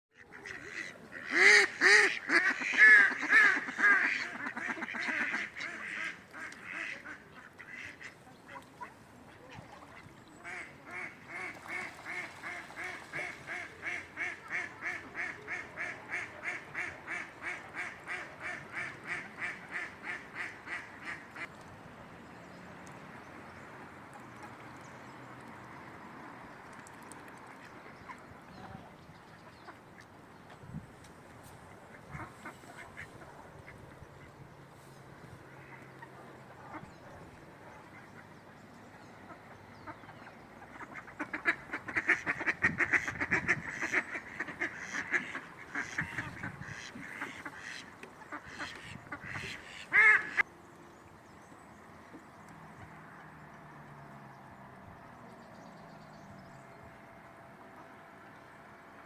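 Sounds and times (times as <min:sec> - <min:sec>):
ducks quacking: 0:00.2 - 0:21.5, 0:31.9 - 0:34.4, 0:39.2 - 0:50.5.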